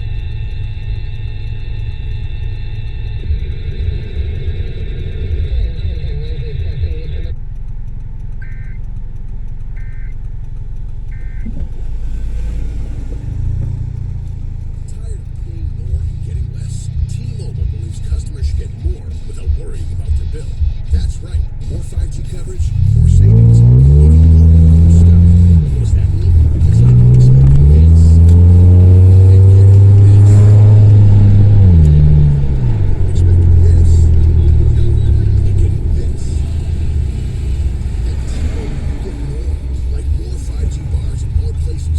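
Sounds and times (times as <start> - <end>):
car engine revving: 0.0 - 41.9
loud deep exhaust rumble: 0.0 - 41.9
short electronic beep: 8.4 - 8.9, 9.8 - 10.2, 11.1 - 12.6.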